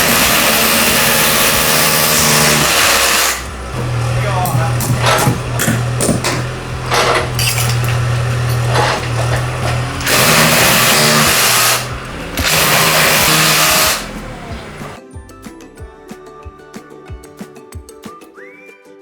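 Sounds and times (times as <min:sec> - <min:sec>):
loud rushing: 0:00.0 - 0:15.0
small engine humming: 0:00.0 - 0:15.0.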